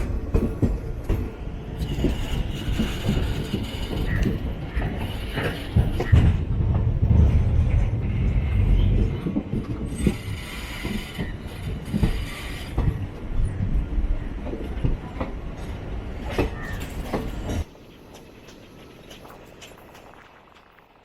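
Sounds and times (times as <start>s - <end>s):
wheels clanking and rattling: 0.0s - 13.8s
train coach rumbling on track: 0.0s - 20.2s.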